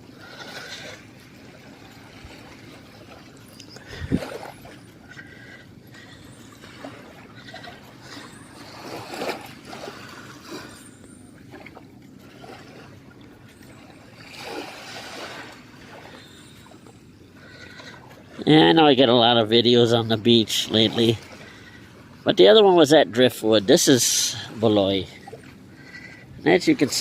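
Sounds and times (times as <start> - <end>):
small waves washing on sand: 6.0 - 10.9, 11.5 - 16.8.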